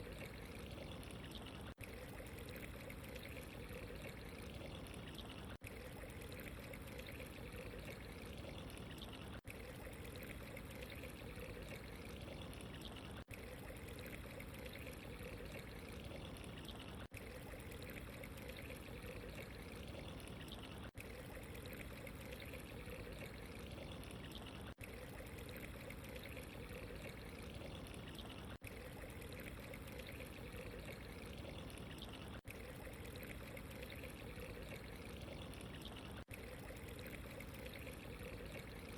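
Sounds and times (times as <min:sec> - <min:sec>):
running water: 0:00.0 - 0:38.9.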